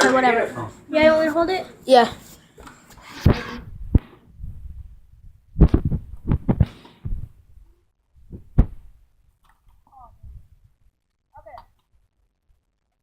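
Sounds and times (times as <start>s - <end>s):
microphone handling noise: 3.0s - 9.0s
dull thumps and knocks: 8.2s - 8.9s.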